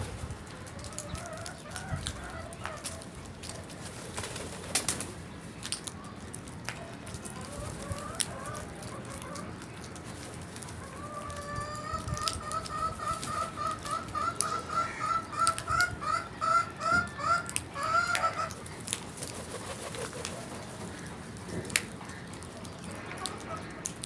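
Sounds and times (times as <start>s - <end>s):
crow calling: 11.8s - 18.8s.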